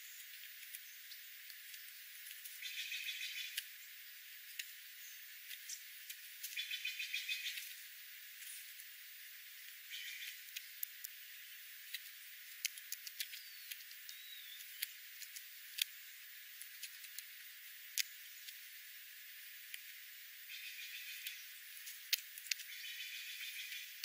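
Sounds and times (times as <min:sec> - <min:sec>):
faint high chirps: 0:00.0 - 0:12.0, 0:13.0 - 0:17.1, 0:20.3 - 0:24.0
faint hiss: 0:00.0 - 0:24.0
sharp clicks: 0:11.9 - 0:16.0.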